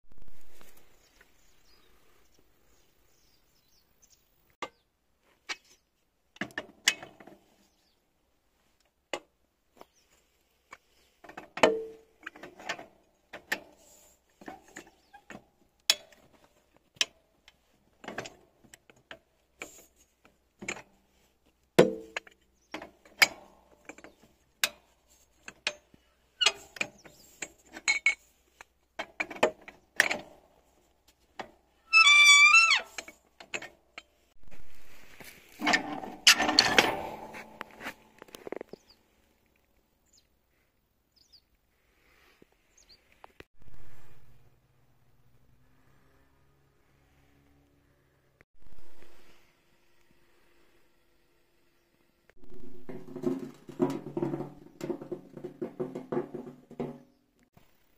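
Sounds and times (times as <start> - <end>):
tools clicking and tapping on metal: 10.7 - 16.4
heavier metal knocks: 52.4 - 57.2.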